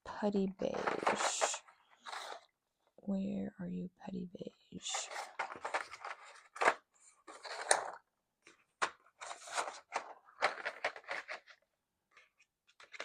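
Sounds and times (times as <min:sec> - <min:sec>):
colored pencils clattering: 0:00.5 - 0:02.5, 0:04.8 - 0:13.0.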